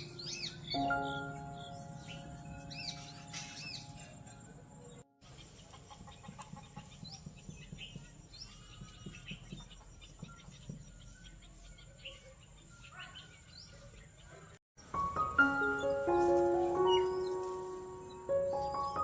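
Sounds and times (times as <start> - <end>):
small birds chirping: 0.0 - 19.0
chickens clucking: 5.3 - 7.1.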